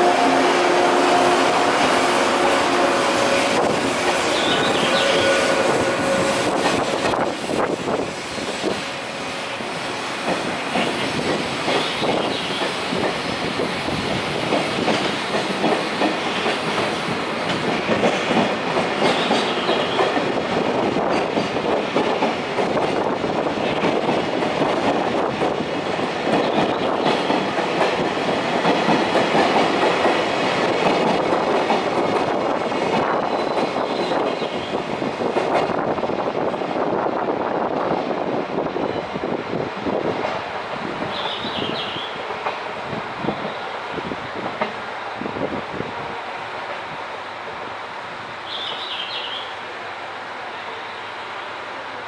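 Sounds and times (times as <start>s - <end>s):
train wheels clacking over joints: 10.2s - 13.4s, 14.4s - 34.6s, 41.1s - 42.8s.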